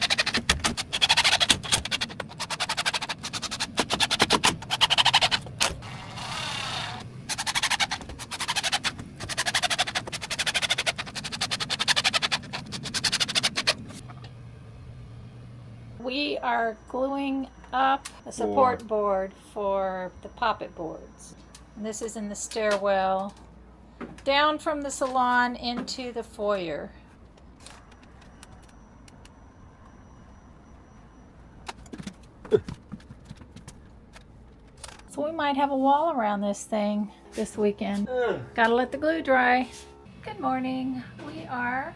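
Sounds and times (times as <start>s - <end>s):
tools and boards clicking and knocking: 0.0s - 5.8s
power driver whirring: 0.0s - 16.0s.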